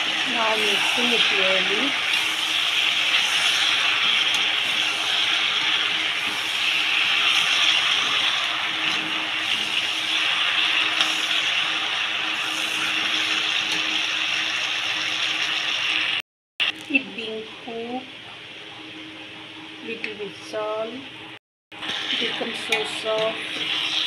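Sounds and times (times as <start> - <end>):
food sizzling in oil: 0.0 - 16.2, 21.8 - 24.0.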